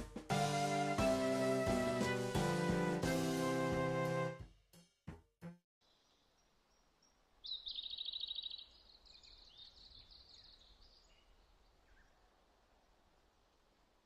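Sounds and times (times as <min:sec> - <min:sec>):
songbird trilling and chirping: 0:05.9 - 0:12.1.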